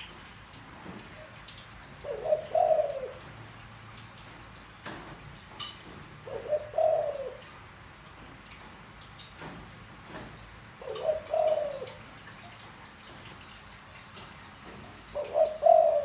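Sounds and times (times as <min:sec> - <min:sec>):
dove cooing: 0:01.9 - 0:03.4, 0:06.2 - 0:07.6, 0:10.8 - 0:12.2, 0:14.6 - 0:16.0.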